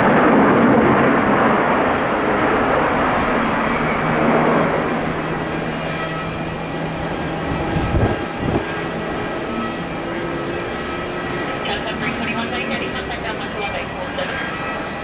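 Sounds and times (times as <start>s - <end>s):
jet engines roaring and whining: 0.0s - 15.0s
wind buffeting microphone: 0.0s - 15.0s.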